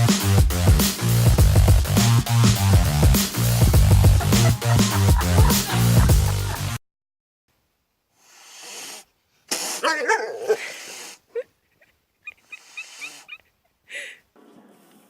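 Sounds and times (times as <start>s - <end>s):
electronic dance music: 0.0s - 6.8s
short high-pitched animal calls: 12.2s - 13.5s.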